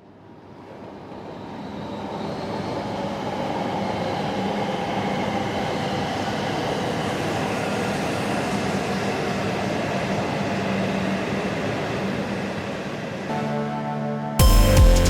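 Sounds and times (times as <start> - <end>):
train rail noise rushing: 0.2 - 13.7.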